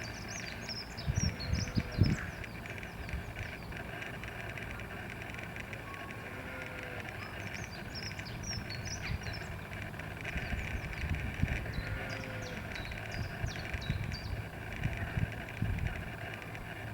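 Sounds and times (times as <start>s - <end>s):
low gusty rumble: 0.0s - 5.1s, 7.6s - 16.9s
small birds chirping: 0.0s - 16.9s.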